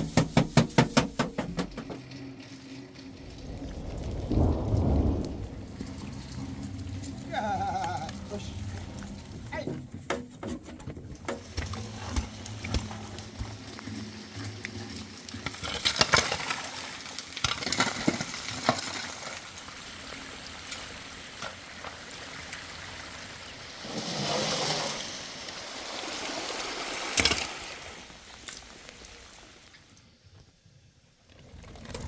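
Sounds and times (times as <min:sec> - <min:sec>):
rain falling steady hiss: 0:00.0 - 0:10.1, 0:11.4 - 0:31.3
sharp knock: 0:00.1 - 0:02.0.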